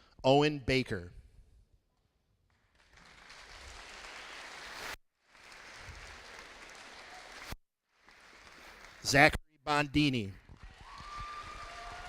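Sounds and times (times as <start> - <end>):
audience applauding: 2.7 - 9.3, 10.5 - 12.0.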